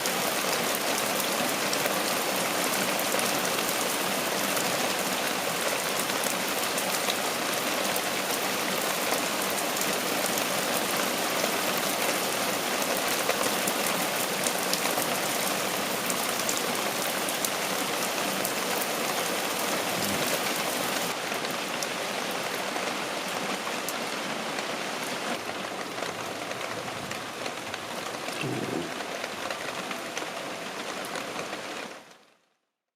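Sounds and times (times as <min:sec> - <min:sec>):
heavy rain: 0:00.0 - 0:32.5.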